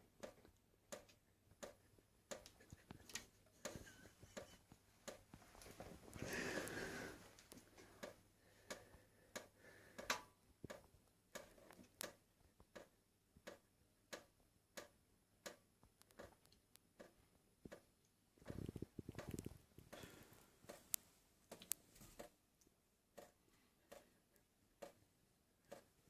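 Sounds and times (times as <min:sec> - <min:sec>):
soft rustling: 0:02.8 - 0:08.0.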